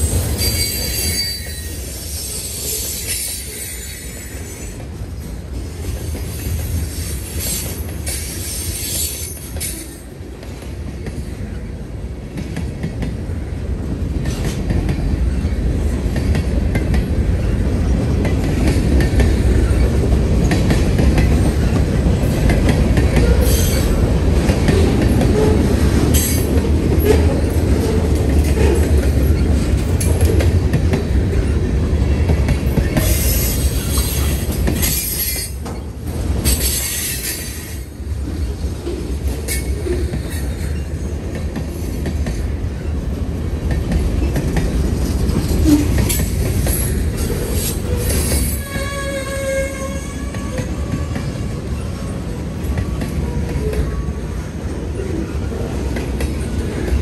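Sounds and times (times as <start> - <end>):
freight train wheels rumbling: 0.0 - 57.0
high-pitched wheel squeals: 0.3 - 4.8.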